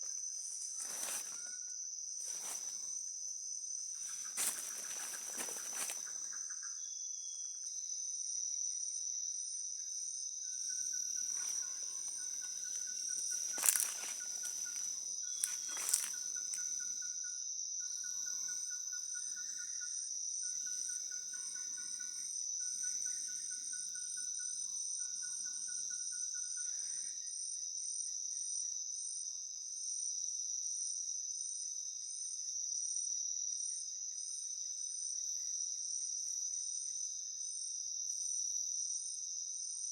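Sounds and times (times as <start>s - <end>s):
fast pulsing insect trill: 0.0s - 27.3s
insect high-pitched drone: 0.0s - 39.9s
soft rustling: 4.0s - 6.1s, 11.4s - 16.2s.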